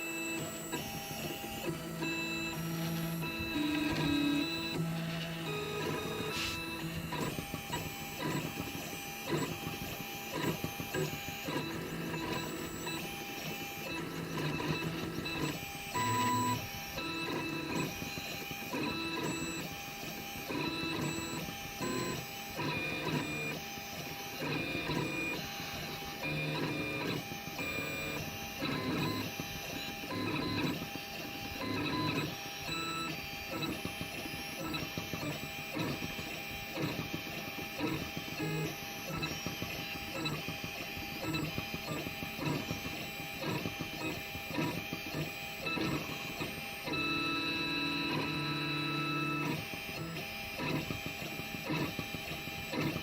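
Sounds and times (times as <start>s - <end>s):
stepper motors whining: 0.2s - 40.5s.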